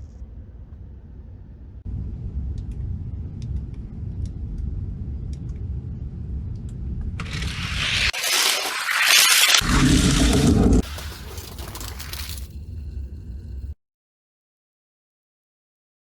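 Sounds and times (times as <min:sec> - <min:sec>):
toy cars rolling on track: 0:07.2 - 0:12.5
loud rushing scrape: 0:07.2 - 0:12.8.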